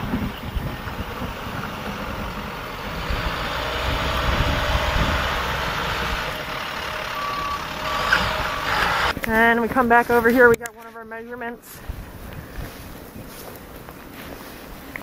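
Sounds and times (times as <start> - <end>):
truck engine running: 0.0 - 9.3.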